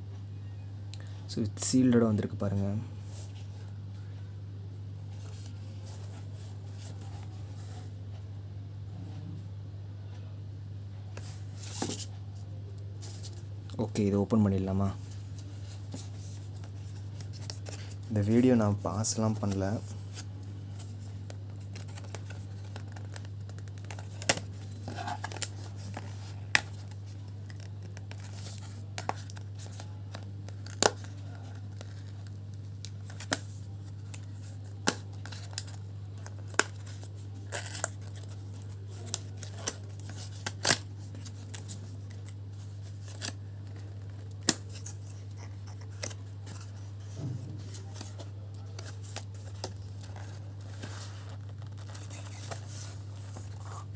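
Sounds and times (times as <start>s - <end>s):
low electrical hum: 0.0s - 53.9s
packaging scratching and tearing: 33.0s - 47.1s, 47.8s - 53.9s.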